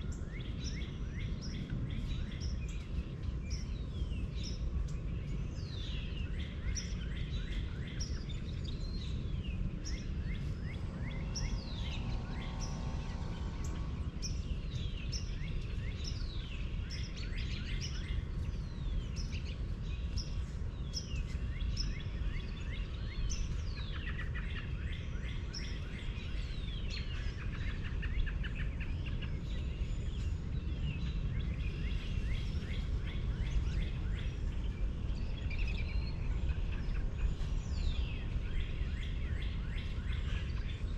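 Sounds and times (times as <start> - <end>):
birds chirping and singing: 0.1 - 40.9
faint hum: 8.0 - 18.5
low rumble: 8.4 - 16.6.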